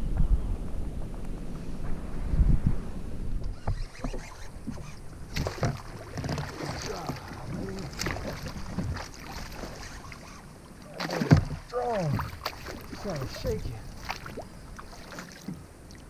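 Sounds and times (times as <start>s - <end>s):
water splashing: 3.6s - 16.0s
knocks on kayak hull: 11.2s - 11.7s.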